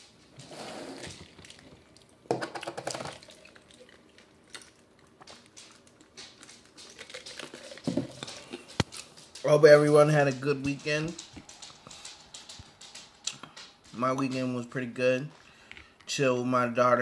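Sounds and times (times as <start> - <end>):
wet chewing: 3.2 - 9.4.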